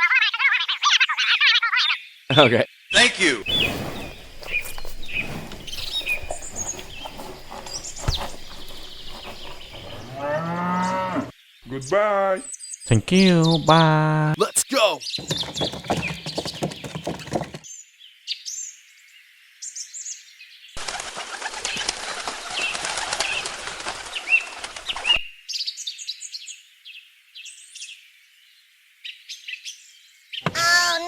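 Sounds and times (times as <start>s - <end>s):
small birds chirping: 1.8s - 10.5s, 11.1s - 17.7s, 20.8s - 28.0s.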